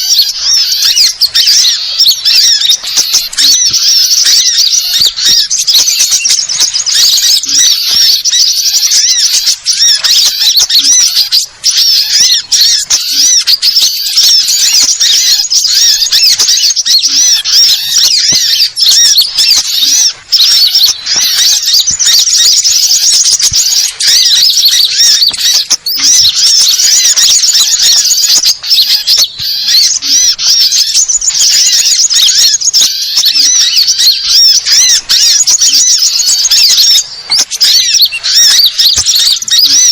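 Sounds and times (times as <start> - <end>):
small birds chirping and trilling: 0.0 - 39.9.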